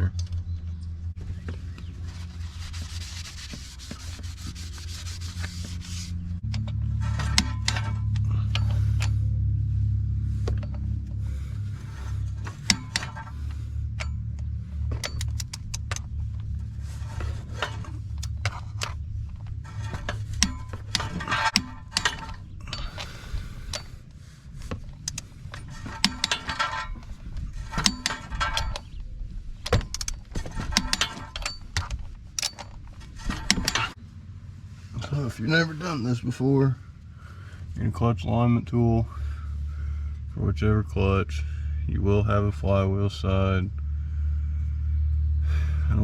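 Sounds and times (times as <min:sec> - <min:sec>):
low steady hum: 0:00.0 - 0:46.0
metal tools clinking: 0:06.1 - 0:09.2, 0:10.5 - 0:34.0
hand ratchet clicking: 0:12.0 - 0:24.0, 0:24.6 - 0:27.1.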